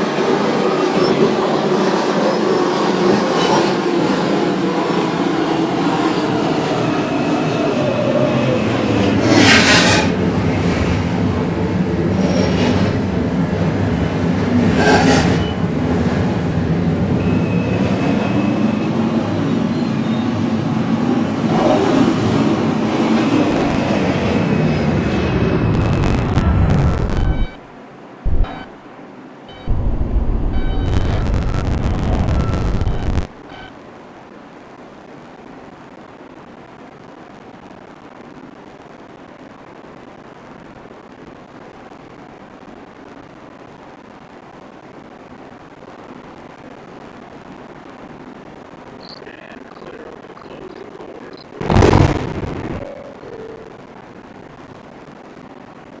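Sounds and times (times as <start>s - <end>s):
hissing rail noise: 0.0s - 27.4s, 49.0s - 53.8s
wheels rumbling on rail: 0.0s - 27.6s, 28.2s - 33.3s.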